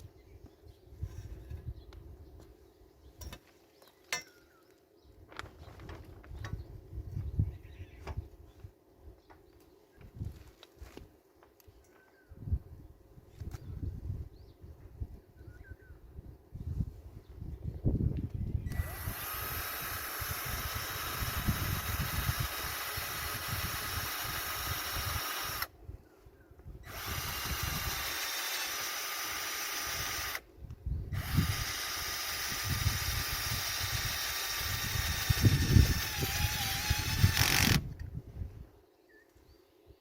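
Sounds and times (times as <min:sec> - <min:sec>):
electric power tool running: 0:18.7 - 0:25.7, 0:26.8 - 0:30.4, 0:31.2 - 0:37.9.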